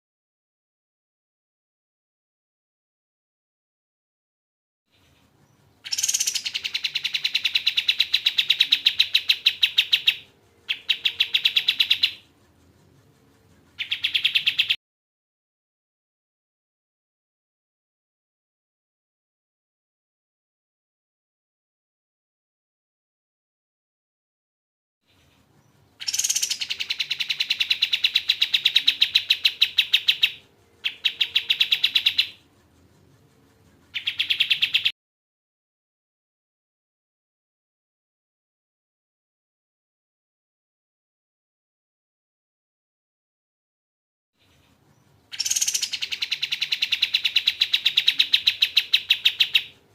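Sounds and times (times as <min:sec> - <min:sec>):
bird trilling: 0:05.8 - 0:12.2, 0:13.8 - 0:14.8, 0:26.0 - 0:32.4, 0:33.9 - 0:34.9, 0:45.3 - 0:49.8.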